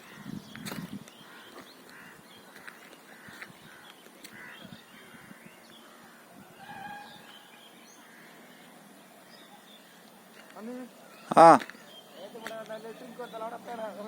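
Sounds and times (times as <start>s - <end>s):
long pitched bird call: 3.1s - 9.9s.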